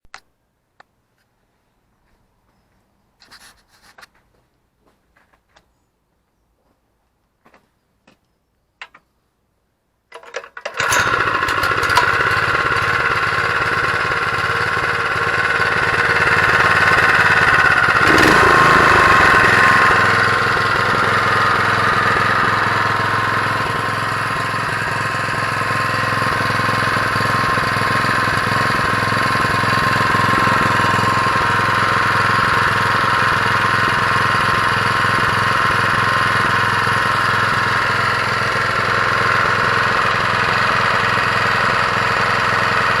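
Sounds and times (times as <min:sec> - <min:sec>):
clicks: 0:08.1 - 0:09.1
petrol engine starting and running: 0:10.1 - 0:43.0.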